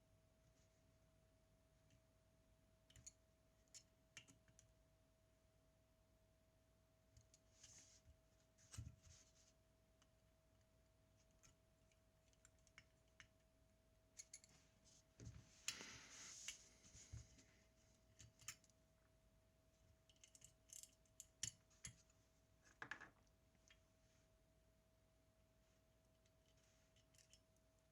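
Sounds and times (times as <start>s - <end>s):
faint steady hum: 0.0s - 27.9s
small tools clicking and tapping: 14.2s - 14.5s, 20.1s - 22.0s, 26.9s - 27.4s.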